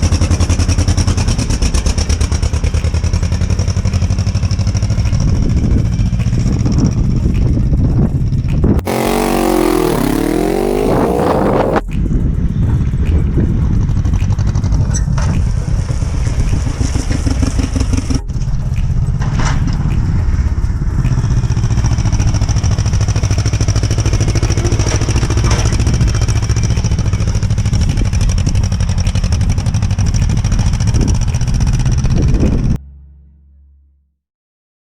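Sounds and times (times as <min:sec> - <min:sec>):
tractor engine droning: 0:08.8 - 0:11.9
loud noise with sweeping pitches: 0:08.8 - 0:12.0.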